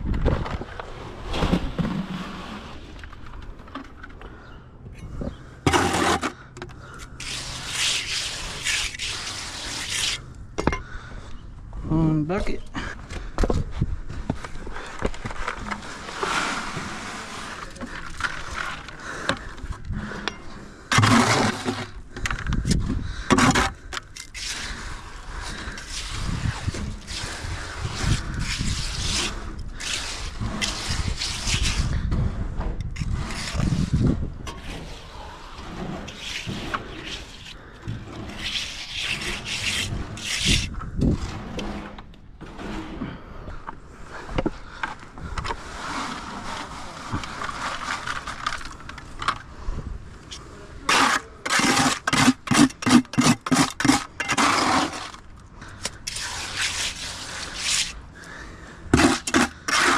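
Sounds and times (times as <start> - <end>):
hand tools scraping wet concrete: 5.6 - 10.3, 14.2 - 32.3, 32.9 - 49.6, 50.3 - 59.9.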